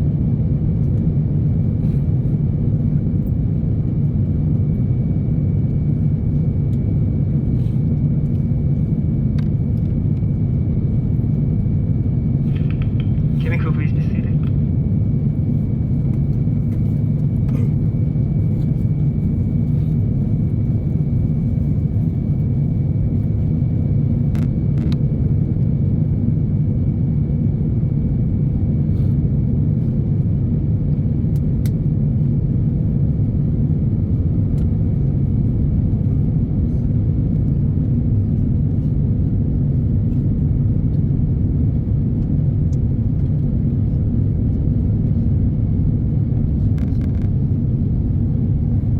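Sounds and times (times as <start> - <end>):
airliner cabin rumble: 0.0 - 48.9.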